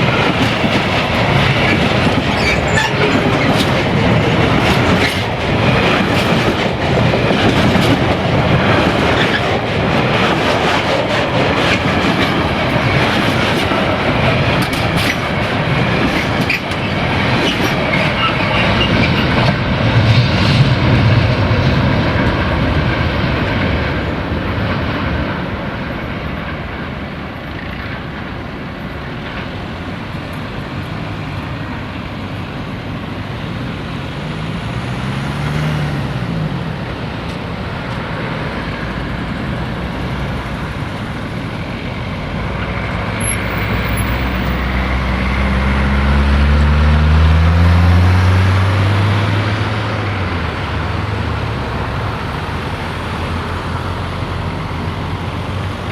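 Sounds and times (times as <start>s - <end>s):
freight train rumble: 0.0s - 55.9s
vehicle noise: 29.3s - 55.9s
engine speeding up: 43.8s - 54.2s
engine revving: 44.6s - 50.1s.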